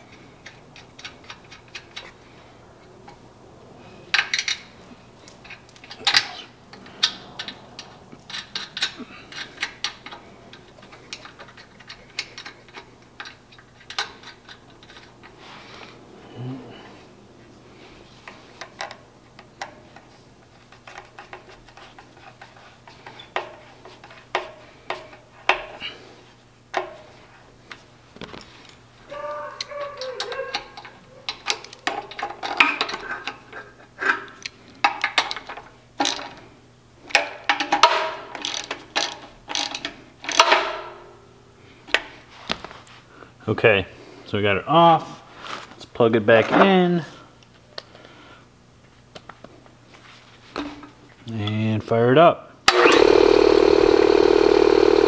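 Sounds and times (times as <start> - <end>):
metal tools clinking and knocking: 5.3 - 15.3.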